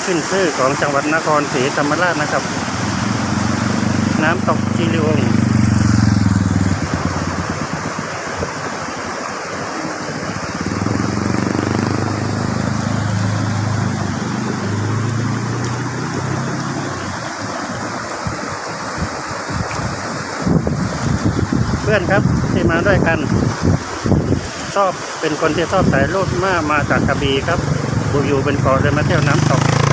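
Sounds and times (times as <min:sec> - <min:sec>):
waterfall and stream rushing: 0:00.0 - 0:29.9
wind buffeting microphone: 0:02.3 - 0:24.7.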